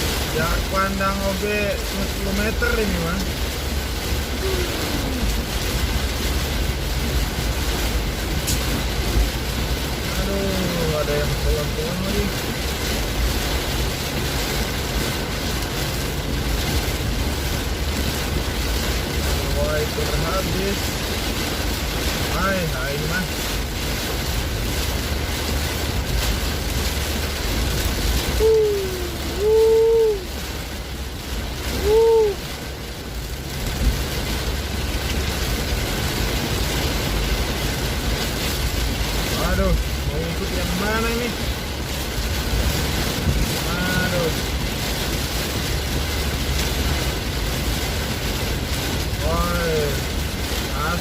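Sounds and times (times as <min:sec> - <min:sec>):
deep low rumble: 0:00.0 - 0:49.3
heavy rainstorm roar: 0:00.0 - 0:51.0.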